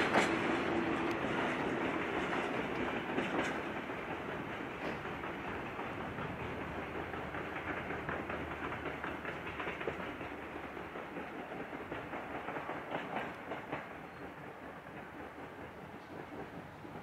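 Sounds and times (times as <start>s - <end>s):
train wagons rumbling: 0.0s - 17.0s
train wheels clacking over rail joints: 0.0s - 17.0s.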